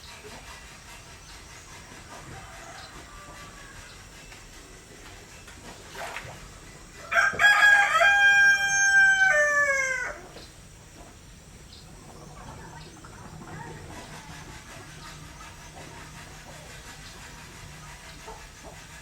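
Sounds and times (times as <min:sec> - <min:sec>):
rooster crowing: 0:02.2 - 0:03.9, 0:07.0 - 0:10.2.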